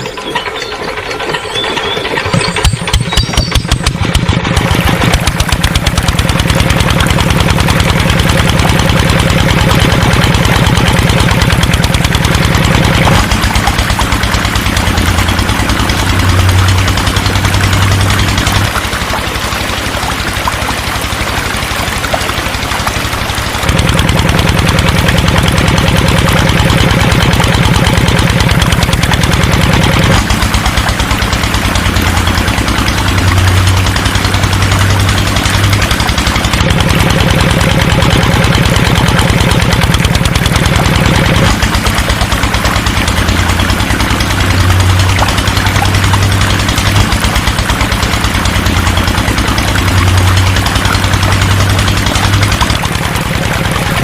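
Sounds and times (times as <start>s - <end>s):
small engine starting and running: 0.0s - 54.0s.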